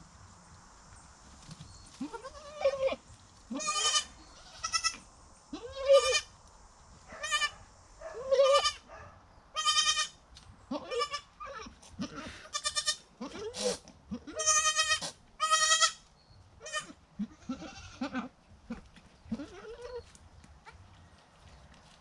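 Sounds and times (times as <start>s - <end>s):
goats bleating: 2.0s - 5.0s, 10.7s - 16.0s, 16.6s - 18.3s.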